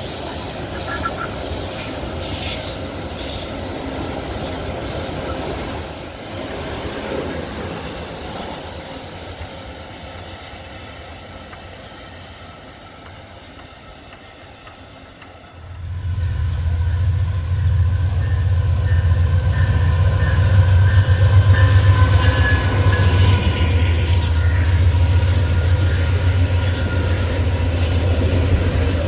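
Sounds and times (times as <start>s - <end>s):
diesel locomotive rumble: 13.6s - 29.0s.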